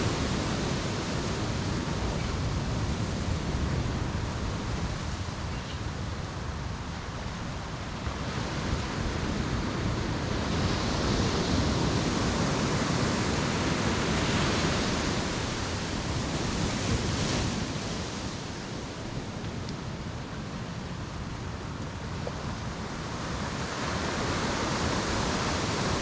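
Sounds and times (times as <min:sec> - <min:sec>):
ocean waves washing onto beach: 0:00.0 - 0:26.0.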